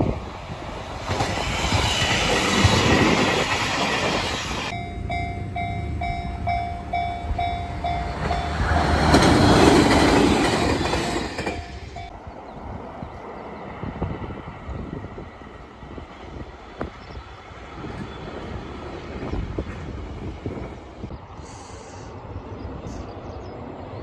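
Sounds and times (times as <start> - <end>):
train wheels rolling on rails: 0.0 - 22.0
train passing: 0.0 - 24.0
level crossing bell ringing: 4.7 - 8.6.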